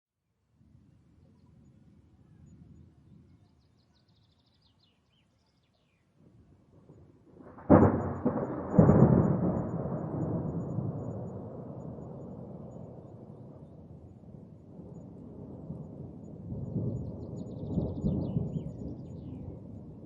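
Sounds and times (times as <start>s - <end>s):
thunderclap and rolling rumble: 6.2s - 20.0s.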